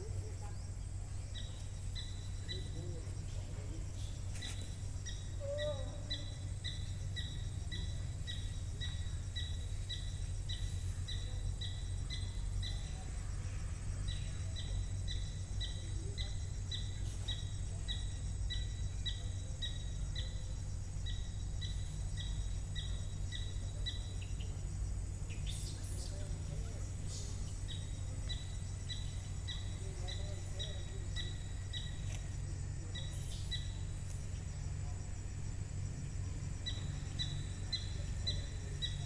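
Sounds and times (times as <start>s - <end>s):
steady low rumble: 0.0s - 39.0s
bird chirping: 0.1s - 13.1s, 25.3s - 34.6s, 36.6s - 39.0s.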